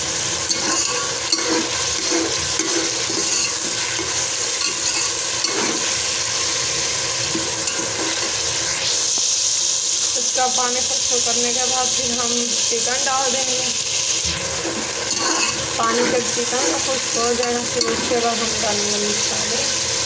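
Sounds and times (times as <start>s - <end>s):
onions frying in oil: 0.0s - 20.0s
metal spoon scraping a pot: 0.4s - 8.5s, 14.5s - 18.7s.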